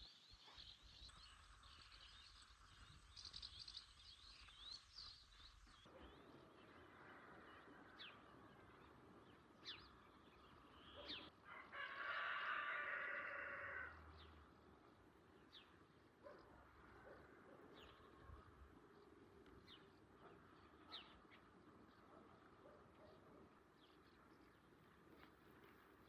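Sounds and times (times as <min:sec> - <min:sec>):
small birds chirping: 0:00.0 - 0:11.3, 0:14.2 - 0:26.0
rooster crowing: 0:11.4 - 0:14.1.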